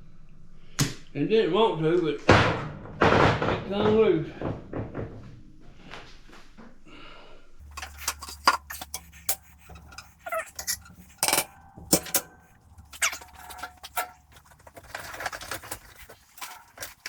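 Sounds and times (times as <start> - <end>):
sharp knocks and clatters: 2.3 - 5.4, 7.6 - 17.0
low steady hum: 7.4 - 17.0.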